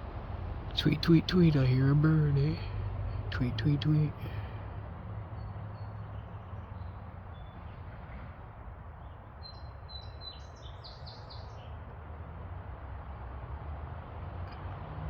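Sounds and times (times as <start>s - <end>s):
songbird chirping: 0.8s - 11.9s.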